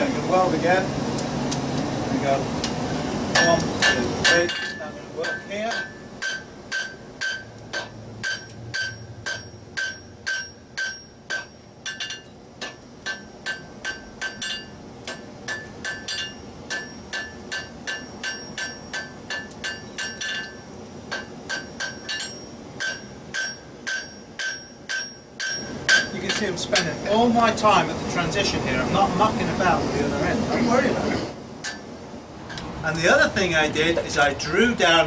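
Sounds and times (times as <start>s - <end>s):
hammer striking steel on anvil: 3.3s - 27.0s, 31.6s - 31.9s.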